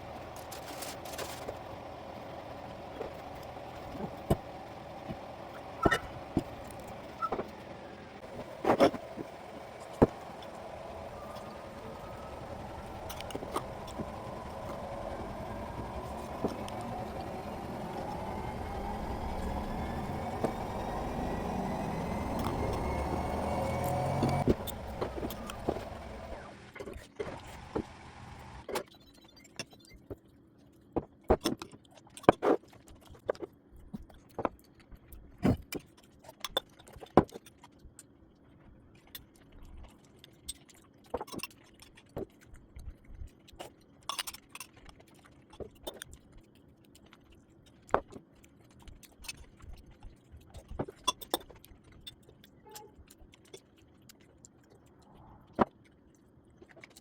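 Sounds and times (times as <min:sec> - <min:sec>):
steady hum: 0:00.0 - 0:28.6.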